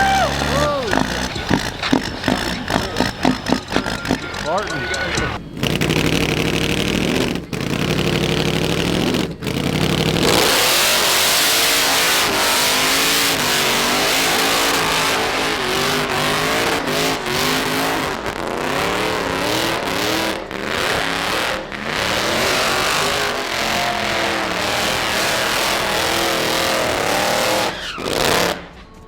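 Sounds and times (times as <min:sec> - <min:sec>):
deep diesel engine note: 0:00.0 - 0:11.1
engine revving hard: 0:00.0 - 0:28.8.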